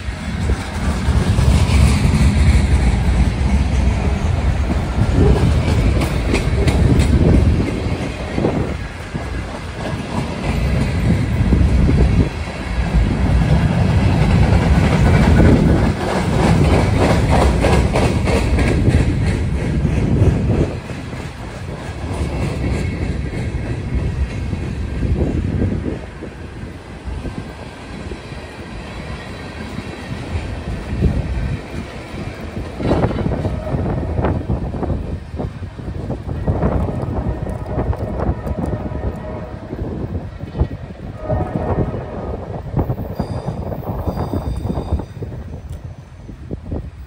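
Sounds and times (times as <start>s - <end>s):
wheels clacking over rail joints: 0.0s - 25.4s
freight train rumbling past: 0.0s - 47.0s.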